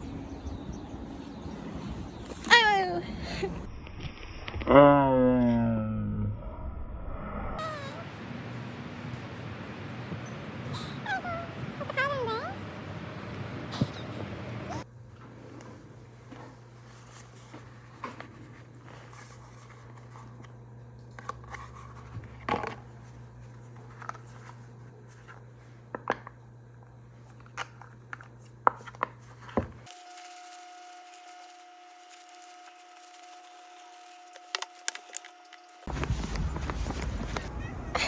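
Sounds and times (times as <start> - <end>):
steady low hum: 7.6 - 38.0.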